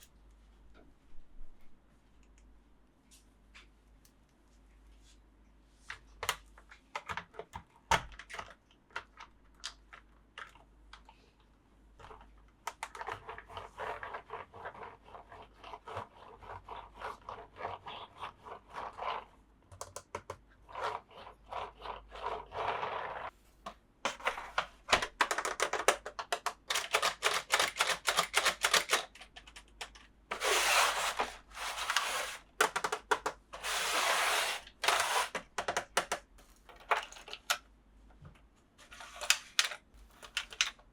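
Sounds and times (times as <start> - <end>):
plastic clicks and taps: 19.7 - 20.4, 24.1 - 30.1, 32.6 - 33.4, 35.4 - 38.5.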